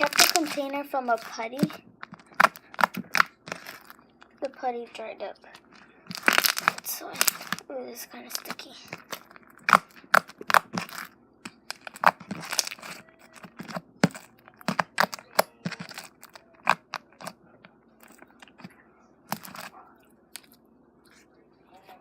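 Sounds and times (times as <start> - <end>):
slime popping and crackling: 0.0 - 4.5, 5.5 - 7.6, 8.2 - 17.4, 19.3 - 19.8.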